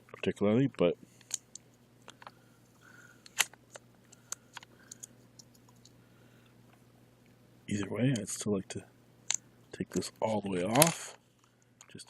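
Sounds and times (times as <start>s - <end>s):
hands handling plastic case: 10.2s - 11.1s.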